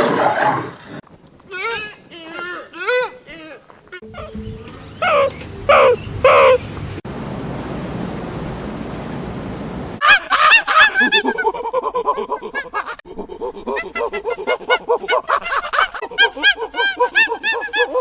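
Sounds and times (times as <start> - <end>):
loud falling animal calls: 1.3 - 7.0
fast short animal calls: 1.4 - 7.0.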